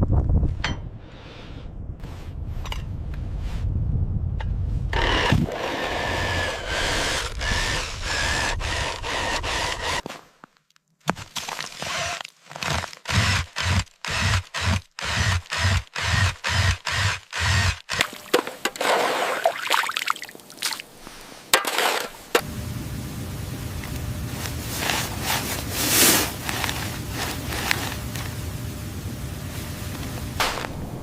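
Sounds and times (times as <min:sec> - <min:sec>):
steady hissing noise: 0:20.2 - 0:31.0
irregular rustling: 0:23.9 - 0:28.6.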